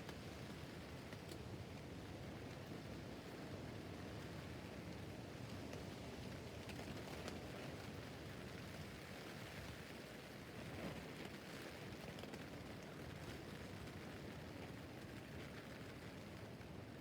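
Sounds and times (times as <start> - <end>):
rain hissing on tent: 5.7 - 17.0.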